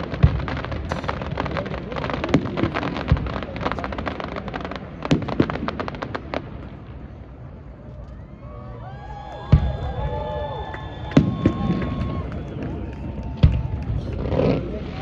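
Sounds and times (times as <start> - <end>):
heavy firework booms: 0.0 - 7.5, 9.5 - 10.3, 13.3 - 15.0
fireworks crackling: 0.0 - 8.2, 9.0 - 15.0.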